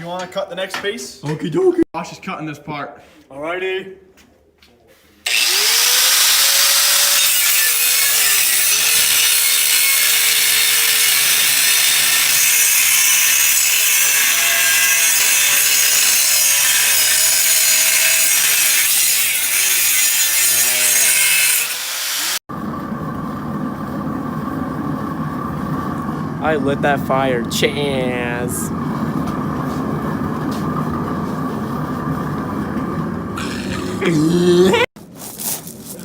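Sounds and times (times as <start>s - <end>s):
power saw cutting: 5.2s - 22.4s
steady background hum: 22.5s - 36.0s.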